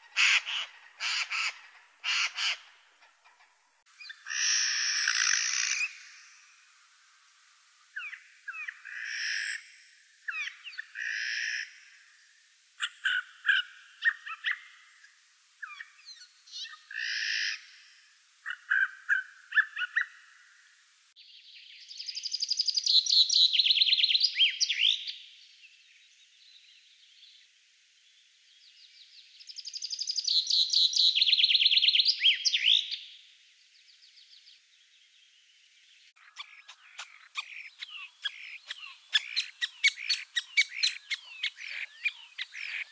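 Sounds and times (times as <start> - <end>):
rapid bird calls: 0.0 - 6.8, 7.8 - 12.1, 12.8 - 20.7, 36.1 - 42.9
long trilled bird songs: 0.0 - 42.9
songbirds singing: 0.0 - 42.9.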